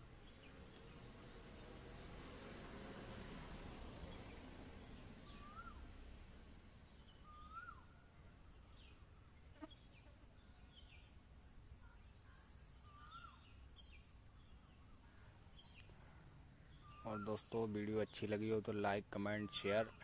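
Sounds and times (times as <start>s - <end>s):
whistled bird notes: 5.2s - 5.9s, 7.1s - 8.1s
faint click: 15.7s - 16.0s.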